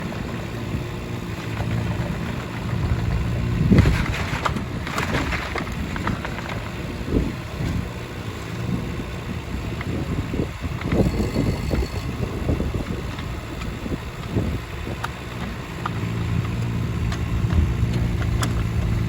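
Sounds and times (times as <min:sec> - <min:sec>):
excavator diesel engine running: 0:00.0 - 0:19.0
wind on microphone: 0:02.7 - 0:06.2, 0:08.6 - 0:19.0.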